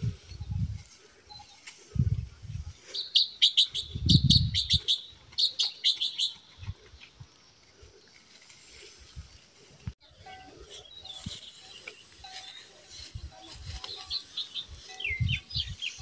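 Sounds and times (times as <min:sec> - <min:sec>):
small bird chirping: 0:02.8 - 0:07.2, 0:13.3 - 0:16.0.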